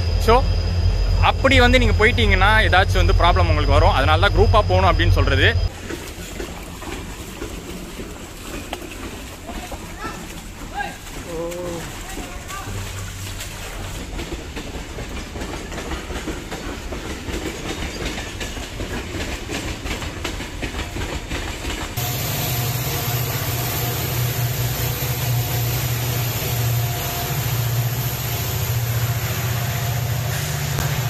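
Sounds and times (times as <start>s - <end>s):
low engine hum: 0.0s - 14.3s
train wheels clicking: 0.0s - 31.0s.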